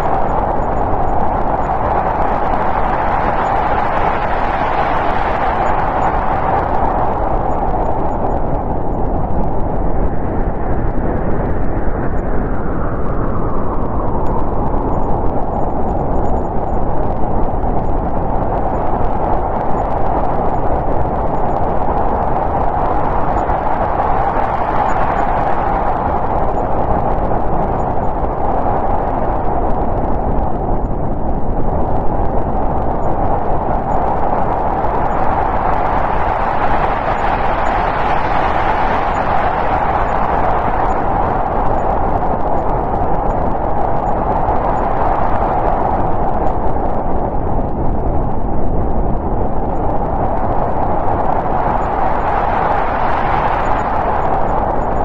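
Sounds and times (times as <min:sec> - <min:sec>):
whistling storm wind: 0:00.0 - 0:55.0.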